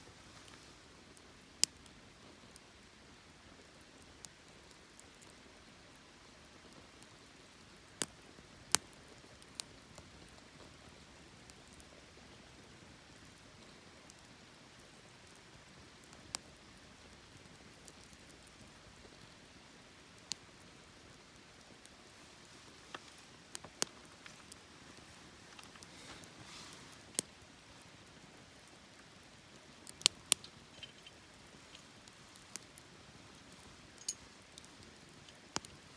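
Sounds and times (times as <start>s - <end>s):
campfire hissing: 0.0s - 35.9s
fire crackles and pops: 0.0s - 35.9s.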